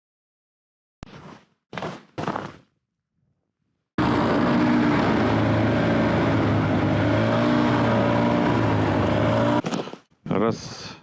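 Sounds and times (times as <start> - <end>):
snowmobile engine running: 4.0 - 9.6.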